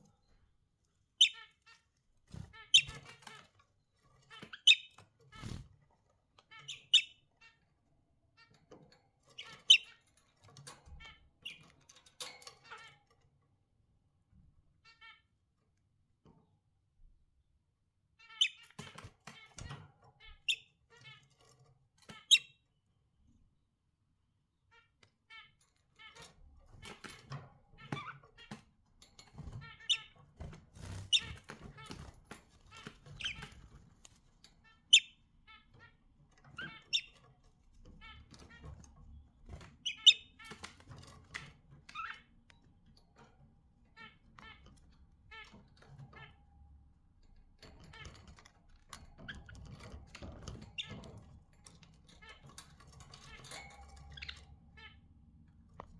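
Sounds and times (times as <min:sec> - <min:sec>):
budgerigars chirping: 0:01.2 - 0:01.6, 0:02.6 - 0:03.4, 0:04.4 - 0:05.6, 0:06.5 - 0:07.5, 0:09.4 - 0:10.0, 0:18.3 - 0:19.7, 0:29.6 - 0:30.2, 0:30.8 - 0:32.1, 0:32.7 - 0:33.7, 0:34.6 - 0:36.0, 0:36.6 - 0:37.2, 0:39.7 - 0:42.3, 0:53.2 - 0:55.0.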